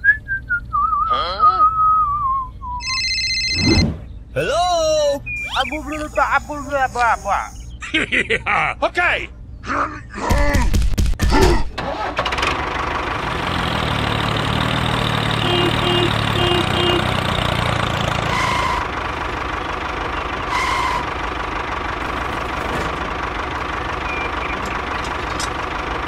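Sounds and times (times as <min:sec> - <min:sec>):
short high tones: 0:02.8 - 0:07.7
tractor engine idling: 0:04.4 - 0:07.8, 0:11.8 - 0:26.0.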